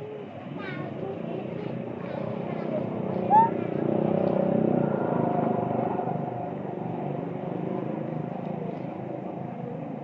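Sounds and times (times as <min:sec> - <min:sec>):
vehicle engine passing by: 0:00.0 - 0:10.0.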